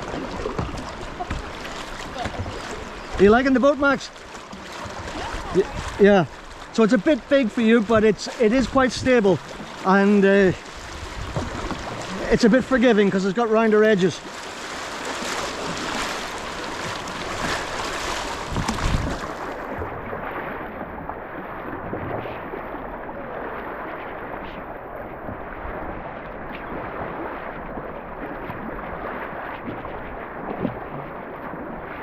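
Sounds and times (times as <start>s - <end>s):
river current rushing: 0.0s - 20.4s
paddle splashes: 0.0s - 32.0s
wind buffeting microphone: 7.9s - 12.8s, 15.5s - 20.4s.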